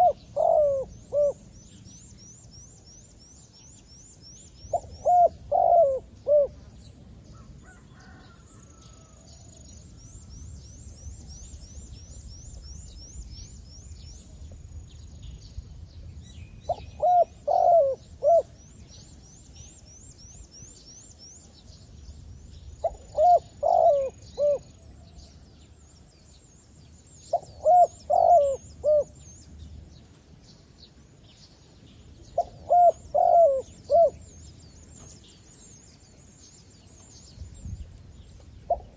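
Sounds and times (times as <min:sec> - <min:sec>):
dove cooing: 0:00.0 - 0:01.5, 0:04.7 - 0:06.7, 0:16.7 - 0:18.6, 0:22.8 - 0:24.7, 0:27.3 - 0:29.2, 0:32.4 - 0:34.3, 0:38.7 - 0:38.9.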